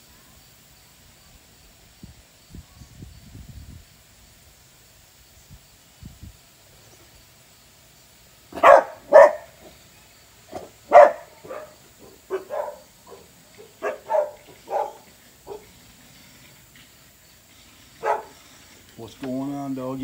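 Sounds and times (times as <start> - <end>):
dog barking: 8.5 - 9.7, 10.5 - 15.7, 18.0 - 18.4.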